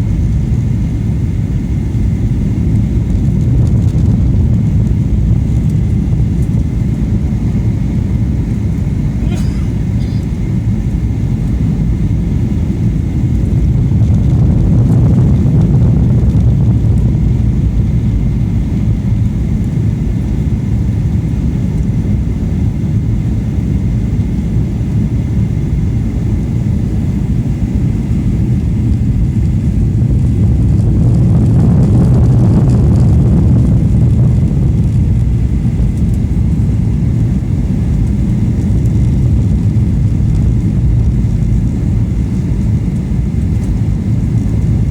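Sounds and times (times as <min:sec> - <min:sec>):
jet engines and airflow rumble: 0:00.0 - 0:44.9.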